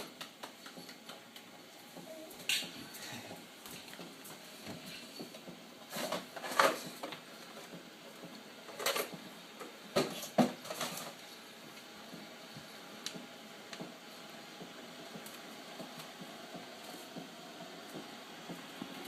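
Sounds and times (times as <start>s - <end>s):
objects clattering and clicking: 4.8s - 7.8s, 8.7s - 11.2s.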